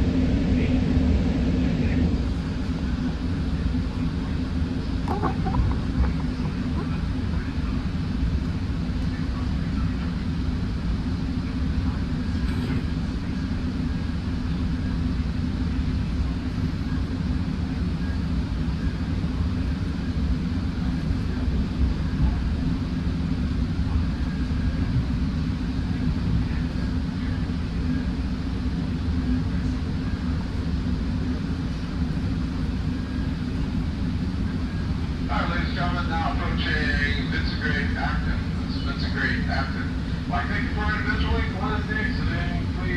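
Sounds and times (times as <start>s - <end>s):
train car rumble: 4.2s - 10.0s, 11.5s - 17.4s.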